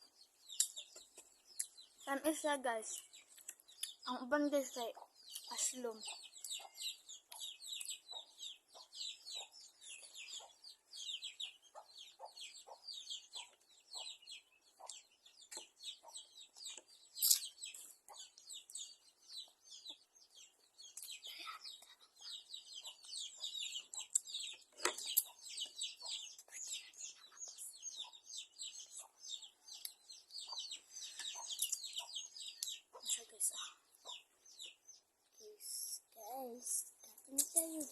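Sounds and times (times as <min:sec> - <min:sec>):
birds chirping: 0:00.0 - 0:37.9
chickens clucking: 0:03.3 - 0:21.2, 0:22.2 - 0:26.4, 0:27.6 - 0:33.2, 0:33.9 - 0:34.8.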